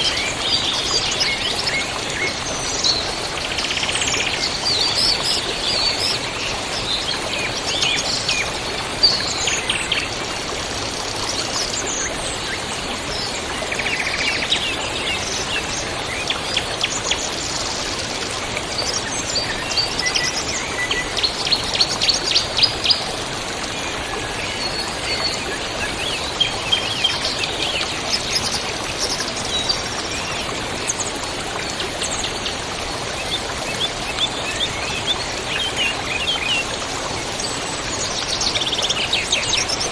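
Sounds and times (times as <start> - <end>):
songbirds chirping and trilling: 0.0 - 9.4
river rushing: 0.0 - 9.6.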